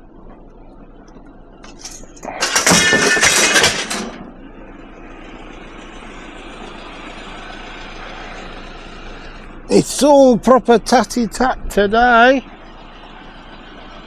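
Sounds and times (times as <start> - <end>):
scrap metal clattering: 1.7 - 4.3.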